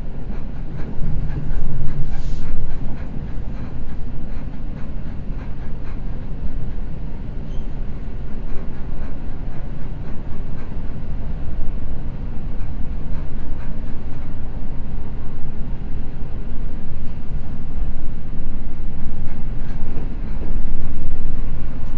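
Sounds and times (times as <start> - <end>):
rail joint clicks: 0.0 - 21.9
train wheels rumbling on rail: 0.0 - 21.9.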